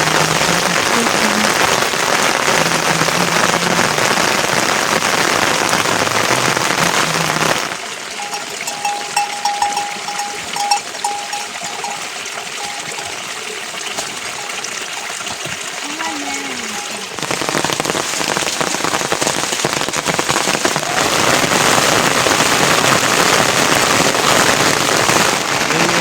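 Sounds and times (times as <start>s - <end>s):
rain falling: 0.0s - 26.0s
high tone pulses: 8.2s - 13.2s.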